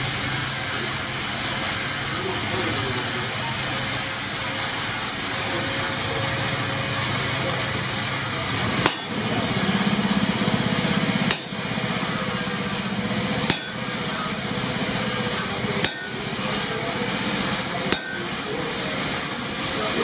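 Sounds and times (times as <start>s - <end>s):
machine running: 0.0s - 20.0s
hammer blows on hot steel: 7.6s - 19.6s.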